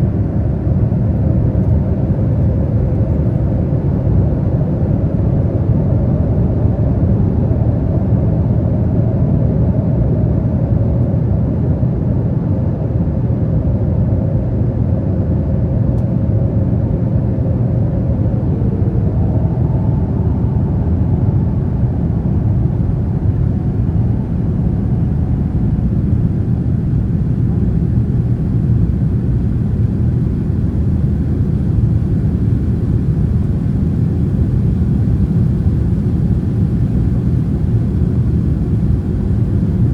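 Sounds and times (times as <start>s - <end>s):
jet engines rumbling: 9.8s - 39.9s.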